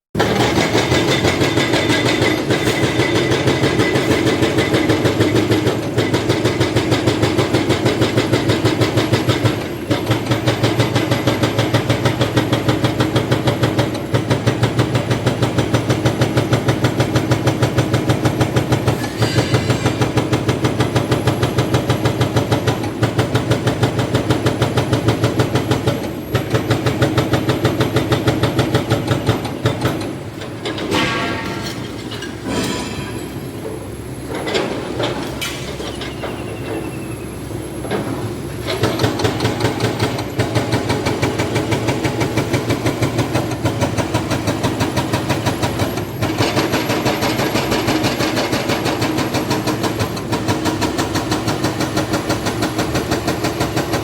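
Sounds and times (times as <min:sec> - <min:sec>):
excavator engine: 0:00.2 - 0:54.0
hydraulic breaker hammering concrete: 0:00.2 - 0:54.0.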